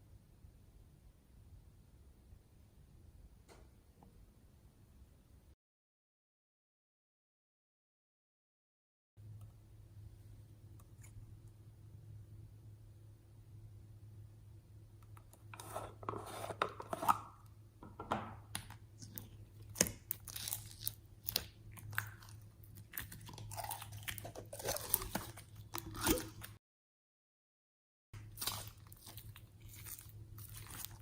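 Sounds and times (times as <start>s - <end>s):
low steady hum: 9.2s - 26.6s, 28.2s - 31.0s
slime crunching and crinkling: 18.9s - 26.6s, 28.2s - 31.0s.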